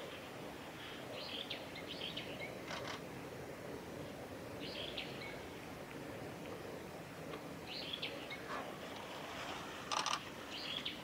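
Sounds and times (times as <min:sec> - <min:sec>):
steady background hiss: 0:00.0 - 0:11.0
wild birds chirping: 0:00.8 - 0:03.0, 0:04.1 - 0:05.6, 0:07.6 - 0:11.0.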